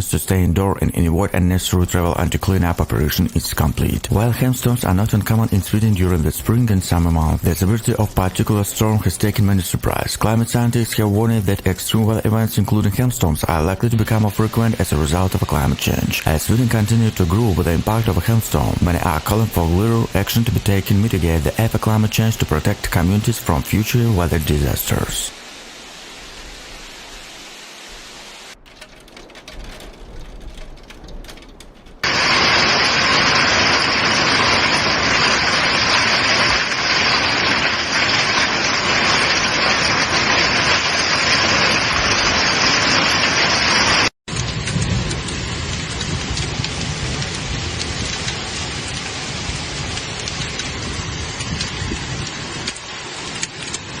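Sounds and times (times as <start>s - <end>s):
heavy rain downpour: 0.0s - 54.0s.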